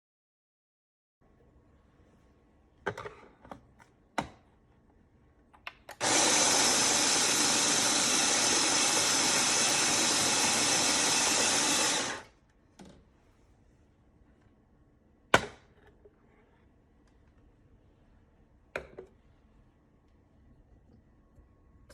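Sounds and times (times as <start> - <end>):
coffee grinder motor whirring: 5.9 - 12.3.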